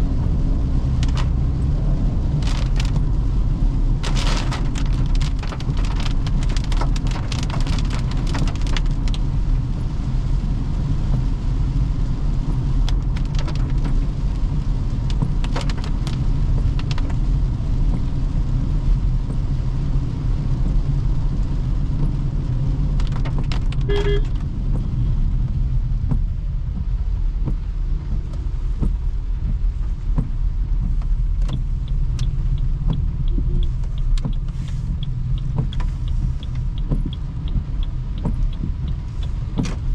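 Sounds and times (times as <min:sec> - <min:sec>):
tyres rumbling on wet road: 0:00.0 - 0:39.9
short beep: 0:23.9 - 0:24.3
ticks and clicks: 0:30.2 - 0:39.9.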